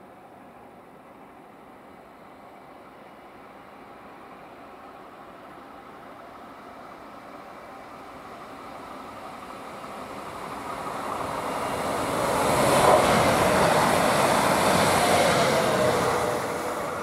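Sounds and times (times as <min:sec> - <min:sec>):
train wheels rumbling on rails: 0:03.8 - 0:17.0.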